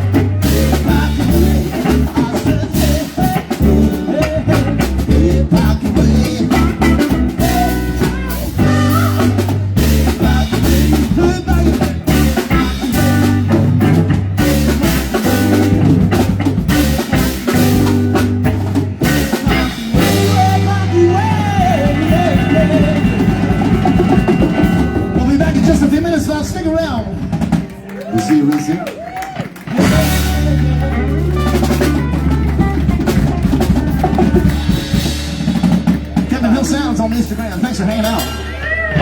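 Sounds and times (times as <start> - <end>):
drum kit beat: 0.0 - 39.0
live band playing: 0.0 - 39.0.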